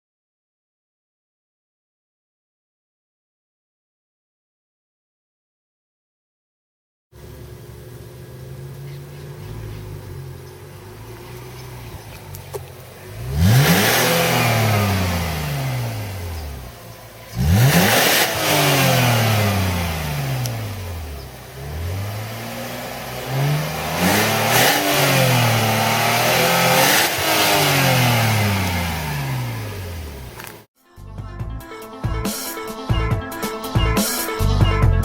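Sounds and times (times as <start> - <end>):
car engine revving: 7.2 - 30.7.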